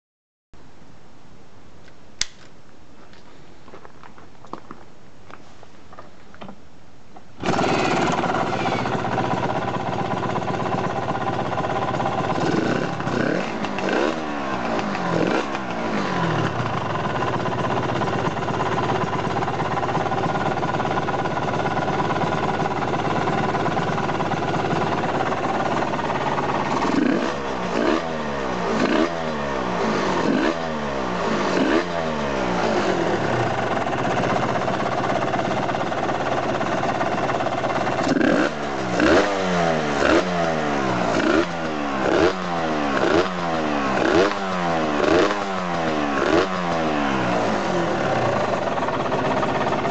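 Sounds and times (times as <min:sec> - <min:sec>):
two-stroke motorcycle engine: 0:07.4 - 0:49.9.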